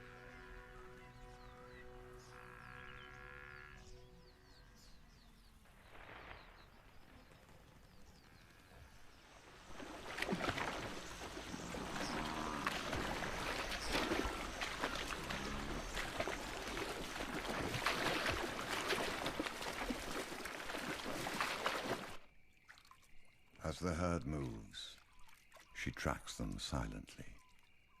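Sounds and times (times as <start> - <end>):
hooves splashing through water: 5.6 - 27.8.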